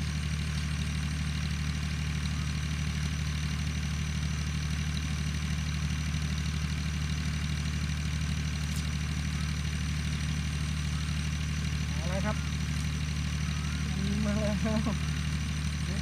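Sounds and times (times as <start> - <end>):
low mechanical hum: 7.8 - 16.0.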